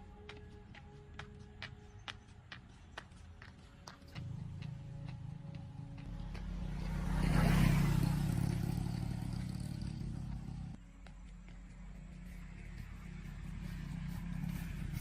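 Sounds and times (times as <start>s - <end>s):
vehicle passing by: 4.2s - 10.8s, 11.7s - 15.0s.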